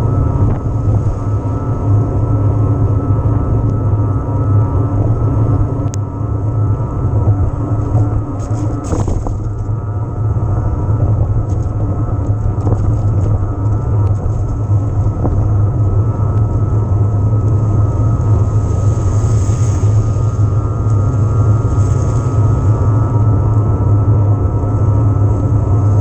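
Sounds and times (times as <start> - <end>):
wind buffeting microphone: 0.0 - 26.0
tyres rolling over trail: 7.1 - 26.0.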